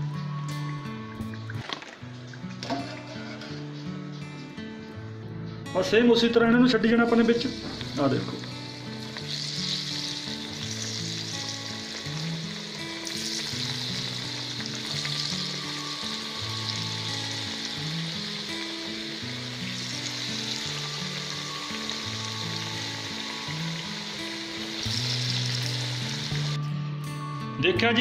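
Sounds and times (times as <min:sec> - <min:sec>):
music with low stepped notes: 0:00.0 - 0:28.0
deep-frying sizzle in hot oil: 0:07.7 - 0:26.6.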